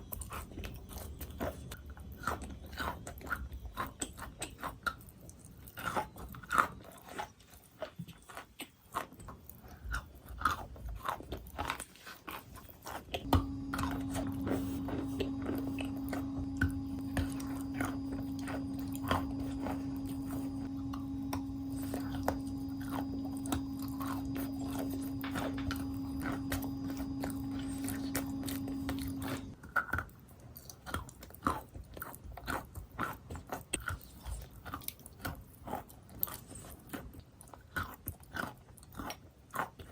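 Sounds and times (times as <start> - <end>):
biting and crunching chalk: 0.2 - 39.9
steady hum: 13.2 - 29.6.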